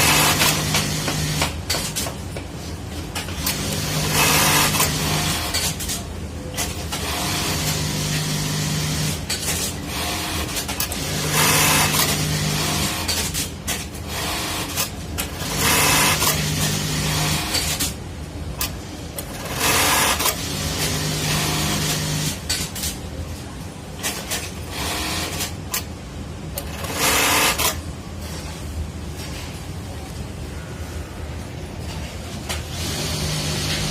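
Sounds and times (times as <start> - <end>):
sewing machine stitching: 0.0 - 2.0, 3.2 - 6.0, 6.6 - 17.9, 19.2 - 22.6, 26.6 - 27.8, 32.7 - 33.9
sewing machine motor hum: 32.7 - 33.9.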